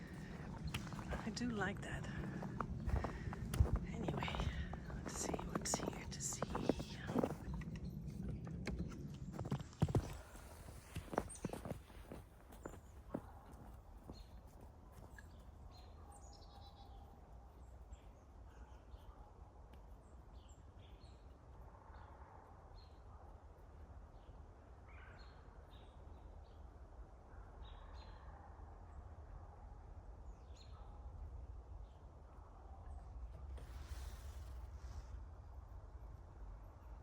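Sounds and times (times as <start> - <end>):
low steady rumble: 0.0 - 10.6
small birds chirping: 0.0 - 19.3.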